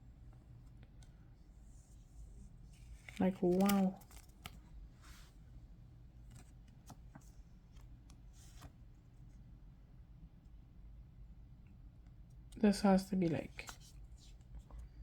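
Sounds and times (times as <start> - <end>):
light ticks of cards: 2.7 - 4.6
cards sliding on plastic: 2.7 - 5.2.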